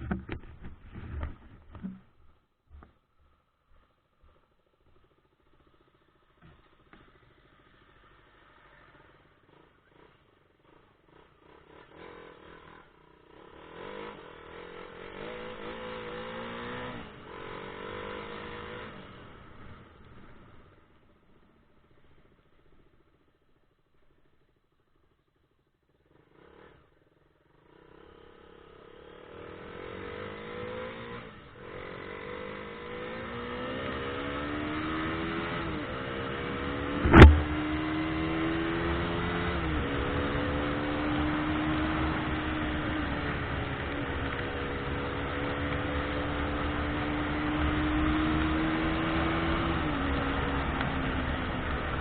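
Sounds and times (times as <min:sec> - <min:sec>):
car engine accelerating: 0:30.2 - 0:52.0
road noise: 0:31.4 - 0:52.0
sharp knock: 0:37.0 - 0:37.9.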